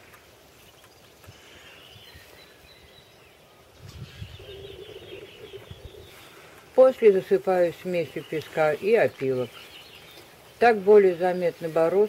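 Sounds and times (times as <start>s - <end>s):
distant birds chirping: 0.0s - 12.0s.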